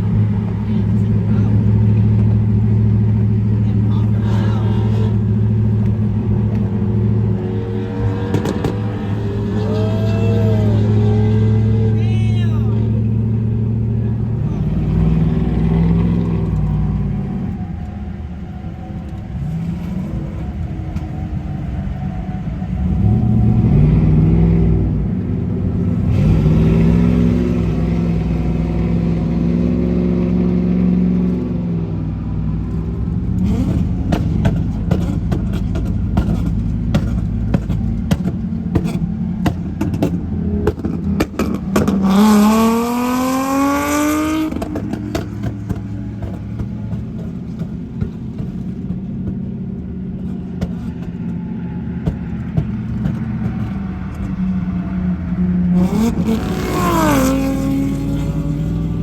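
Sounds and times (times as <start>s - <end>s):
vehicle engines revving: 0.0s - 59.0s
sharp exhaust pops: 8.1s - 9.6s, 32.7s - 59.0s.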